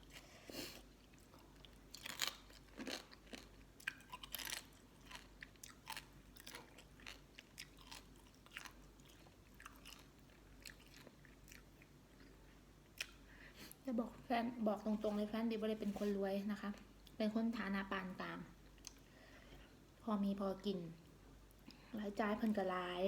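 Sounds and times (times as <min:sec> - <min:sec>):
chewing and crunching food: 0:00.0 - 0:13.8, 0:18.5 - 0:19.7.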